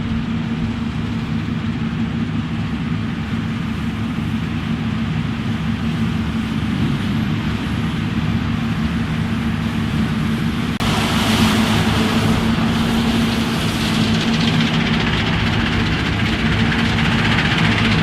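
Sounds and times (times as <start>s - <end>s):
combine harvester engine drone: 0.0s - 18.0s
hiss of machinery: 10.8s - 16.1s.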